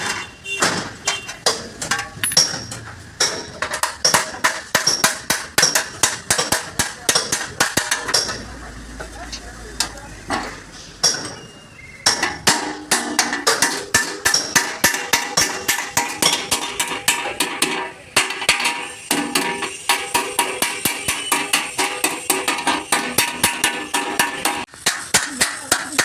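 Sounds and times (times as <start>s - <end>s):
hammer blows on ringing sheet metal: 12.1s - 24.7s.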